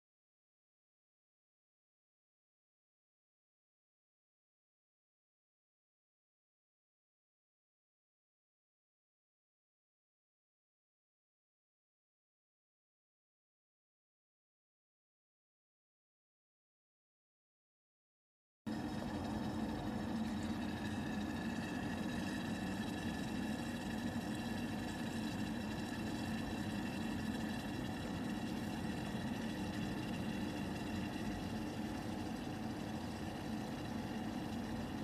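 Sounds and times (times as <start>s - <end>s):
electric kettle heating water: 18.7s - 35.0s.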